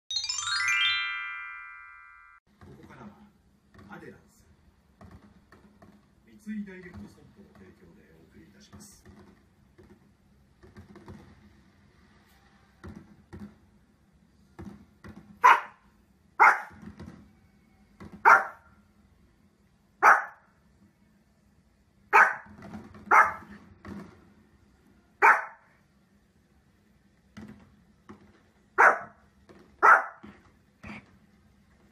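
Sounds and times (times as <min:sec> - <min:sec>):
dog barking: 0:15.4 - 0:15.8, 0:16.4 - 0:16.8, 0:18.2 - 0:18.7, 0:20.0 - 0:20.5, 0:22.1 - 0:22.5, 0:23.1 - 0:23.5, 0:25.2 - 0:25.7, 0:28.8 - 0:29.2, 0:29.8 - 0:30.3.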